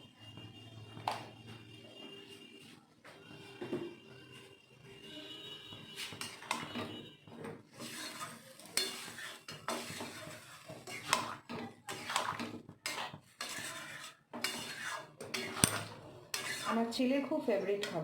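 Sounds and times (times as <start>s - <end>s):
spoon scraping and knocking pot: 6.0s - 18.0s.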